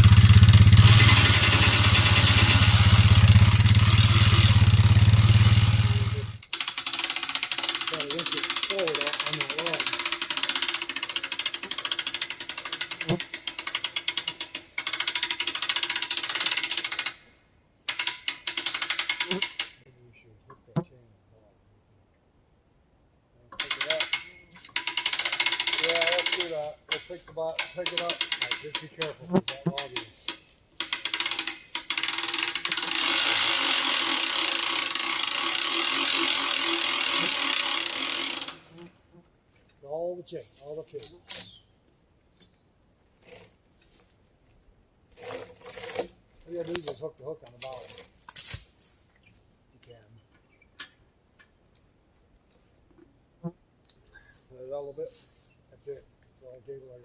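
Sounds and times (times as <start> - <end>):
ratchet clicking rapidly: 0.0 - 17.2, 17.9 - 19.8, 23.6 - 27.0, 27.6 - 29.0, 30.8 - 38.7.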